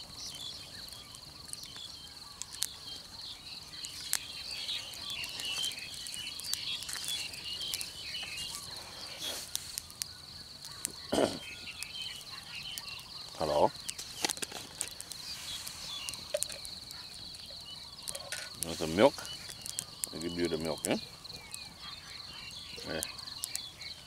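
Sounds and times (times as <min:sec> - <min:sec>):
insects trilling: 0:00.0 - 0:24.0
scattered clicks: 0:00.9 - 0:02.8, 0:03.7 - 0:08.8, 0:13.8 - 0:21.7, 0:22.8 - 0:23.7.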